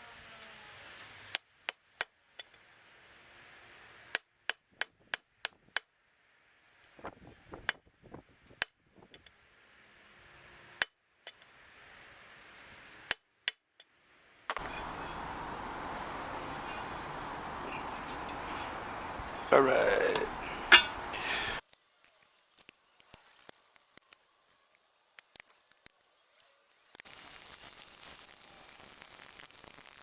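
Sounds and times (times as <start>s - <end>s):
steady noise: 14.5s - 21.6s
hammer striking steel: 20.1s - 21.2s.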